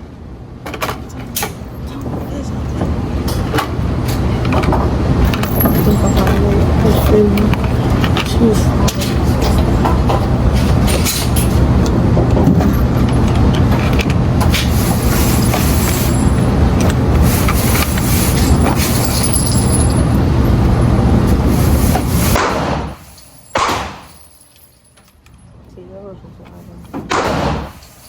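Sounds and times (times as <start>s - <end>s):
car engine running: 1.2s - 22.2s.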